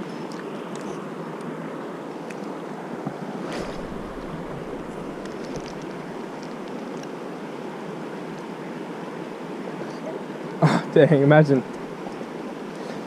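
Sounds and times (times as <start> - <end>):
river rushing over rocks: 0.5 - 10.6
low rumble: 3.5 - 6.8.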